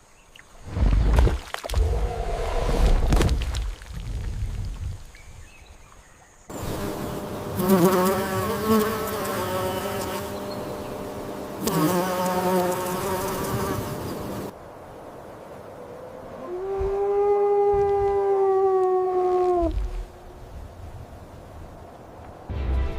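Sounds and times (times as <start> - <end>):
flying insect buzzing: 6.5 - 14.5.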